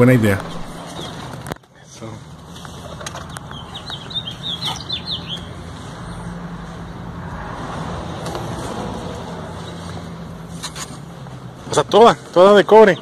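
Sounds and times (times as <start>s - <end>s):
small bird twittering: 3.4s - 5.6s.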